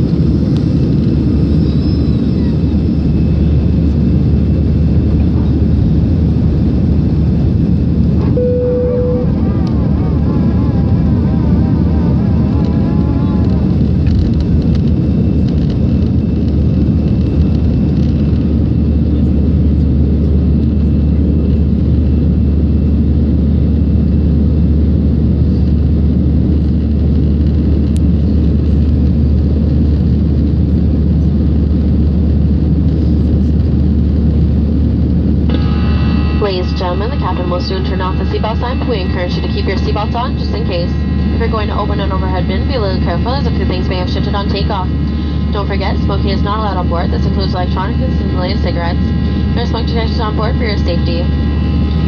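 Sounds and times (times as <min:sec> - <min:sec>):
airplane cabin engine rumble: 0:00.0 - 0:52.0
short single tone: 0:08.2 - 0:09.8.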